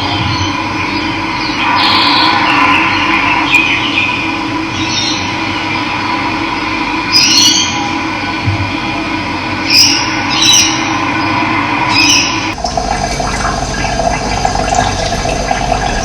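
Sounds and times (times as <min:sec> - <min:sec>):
birds chirping: 0:00.0 - 0:06.3, 0:09.6 - 0:16.0
running water: 0:10.3 - 0:16.0.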